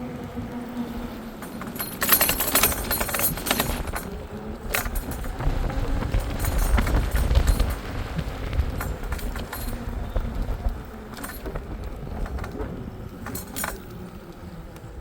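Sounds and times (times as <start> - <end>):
wind rumble on microphone: 0.0 - 15.0
metallic rattling and jangling: 1.4 - 12.6, 13.2 - 14.0.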